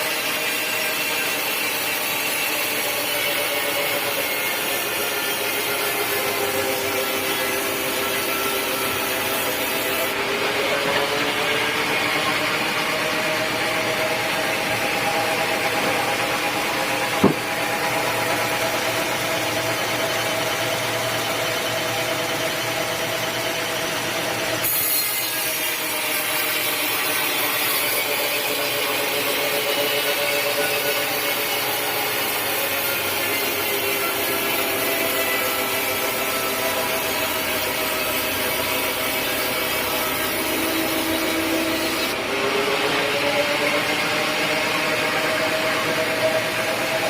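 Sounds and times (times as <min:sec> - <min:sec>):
power saw cutting wood: 0:00.0 - 0:47.0
sharp knock: 0:17.2 - 0:17.7.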